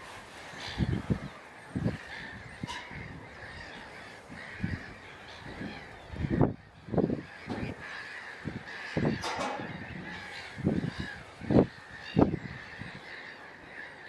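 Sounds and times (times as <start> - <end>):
waterbirds calling: 0.0 - 14.0.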